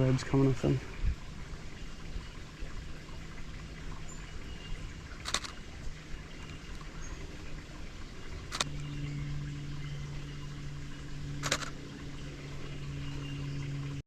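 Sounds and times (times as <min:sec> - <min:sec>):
camera shutter click: 0:05.2 - 0:05.6, 0:08.5 - 0:08.7, 0:11.4 - 0:11.8.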